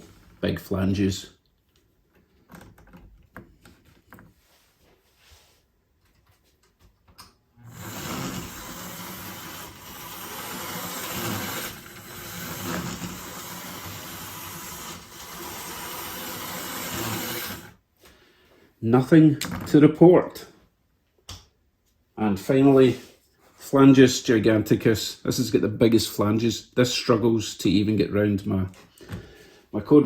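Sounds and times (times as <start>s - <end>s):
model train motor whirring: 7.6s - 17.8s.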